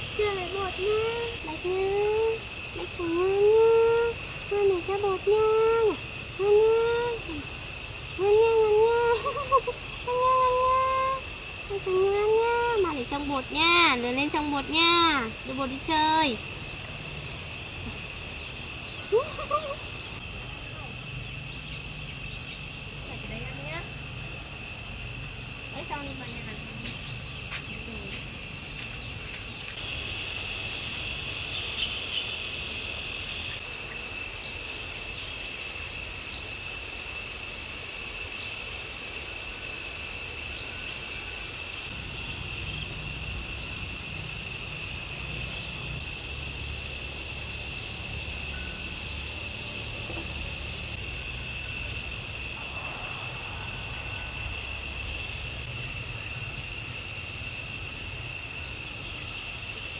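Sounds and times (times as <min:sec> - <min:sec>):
insects chirring: 0:00.0 - 0:59.9
low rumble: 0:41.9 - 0:56.6.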